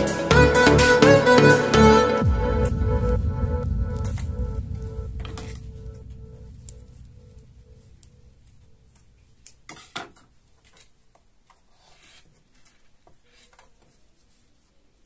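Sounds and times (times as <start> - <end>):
background music: 0.0 - 8.5.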